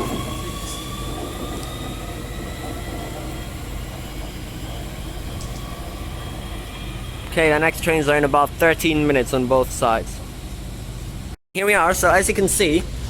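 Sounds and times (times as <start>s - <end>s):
electric train motors whining: 0.0s - 9.9s.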